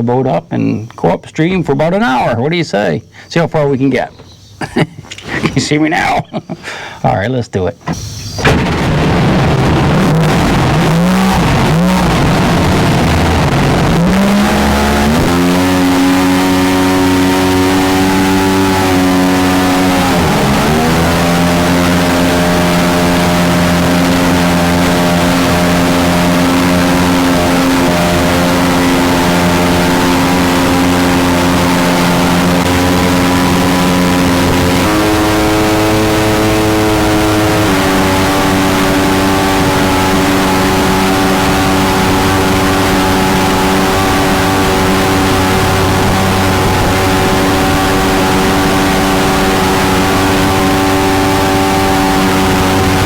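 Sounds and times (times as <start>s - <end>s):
boat engine revving: 7.9s - 53.0s.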